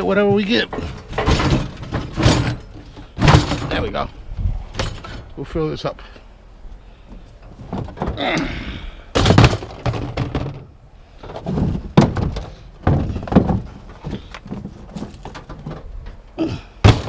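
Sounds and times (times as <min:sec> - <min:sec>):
heavy thuds of scrap metal: 0:00.1 - 0:04.0, 0:09.1 - 0:16.0, 0:16.8 - 0:17.0.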